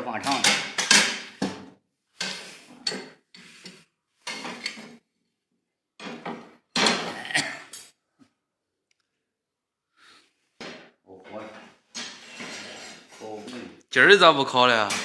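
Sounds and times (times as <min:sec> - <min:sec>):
firewood clattering in metal stove: 0:00.2 - 0:01.6.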